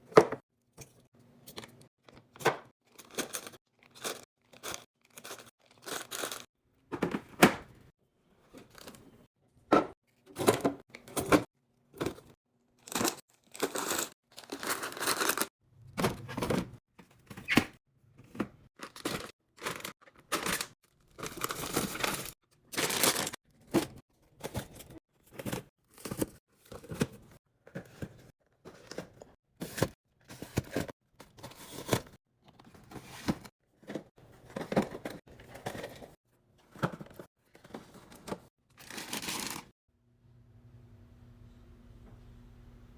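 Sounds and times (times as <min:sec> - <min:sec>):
plastic packaging crinkling and tearing: 0:12.9 - 0:15.5, 0:18.8 - 0:23.4, 0:38.8 - 0:39.7.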